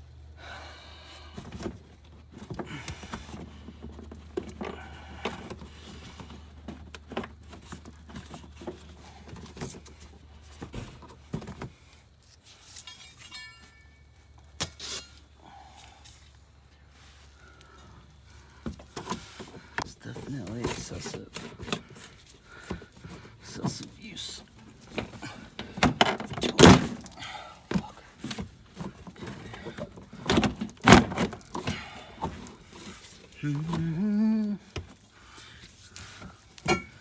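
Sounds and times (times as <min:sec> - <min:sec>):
hand tools clicking and rattling: 0:12.6 - 0:15.3, 0:36.4 - 0:37.0.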